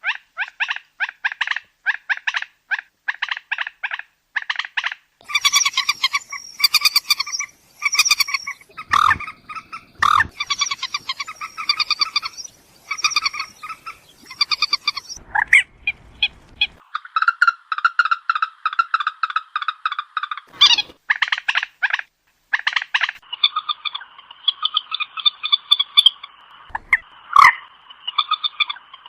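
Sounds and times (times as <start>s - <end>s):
moorhen clucking calls: 0.0s - 29.0s.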